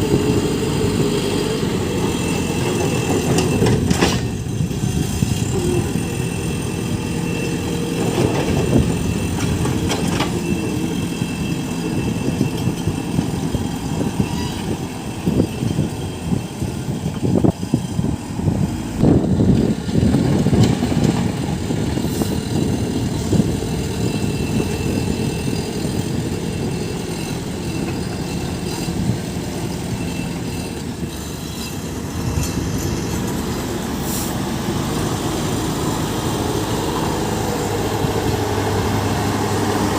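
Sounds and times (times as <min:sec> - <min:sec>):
diesel engine working: 0:00.0 - 0:39.9.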